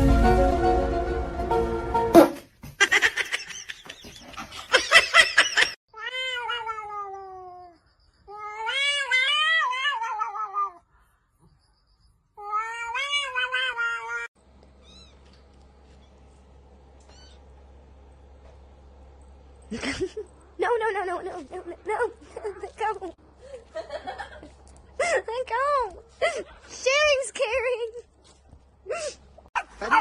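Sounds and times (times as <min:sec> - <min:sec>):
cat yowling: 0:06.0 - 0:10.8, 0:12.4 - 0:14.3.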